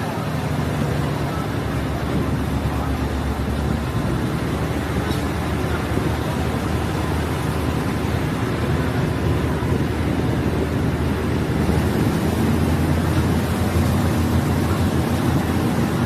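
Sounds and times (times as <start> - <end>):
train engine drone: 0.0 - 16.0
train running gear rumble: 0.0 - 16.0.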